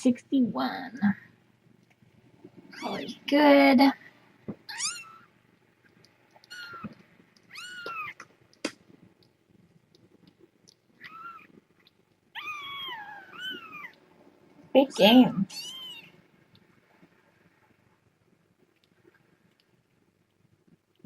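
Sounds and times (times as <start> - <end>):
kittens meowing: 4.6 - 5.3, 6.4 - 8.3, 11.0 - 11.6, 12.4 - 14.0, 15.4 - 16.2.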